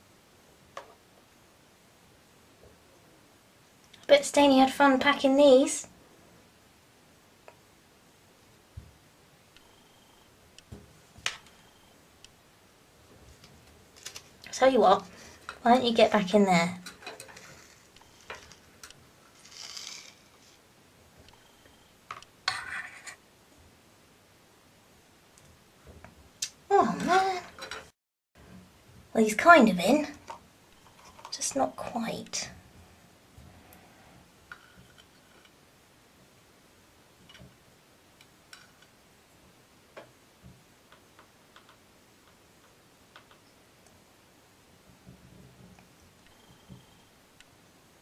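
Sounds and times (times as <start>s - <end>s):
container scraping and rustling: 19.3s - 20.6s.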